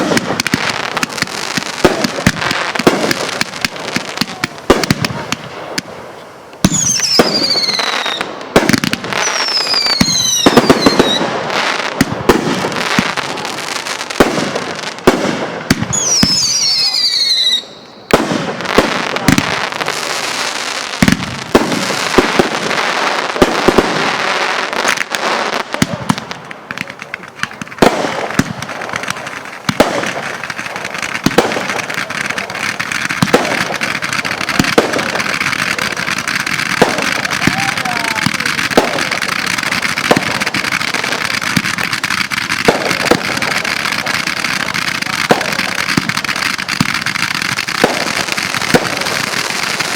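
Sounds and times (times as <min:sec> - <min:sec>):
dense firework crackling: 0:00.0 - 0:49.9
firework bangs: 0:00.0 - 0:49.9
firework whistles falling in pitch: 0:06.2 - 0:11.3, 0:15.8 - 0:18.2.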